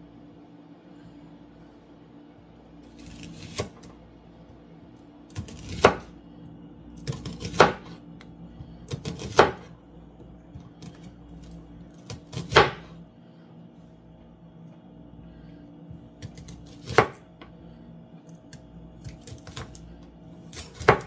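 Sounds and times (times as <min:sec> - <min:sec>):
knife slicing onion: 0:02.8 - 0:03.9, 0:05.3 - 0:06.2, 0:07.0 - 0:08.0, 0:08.8 - 0:09.7, 0:10.8 - 0:13.0, 0:16.2 - 0:17.3, 0:18.5 - 0:19.8, 0:20.4 - 0:21.0.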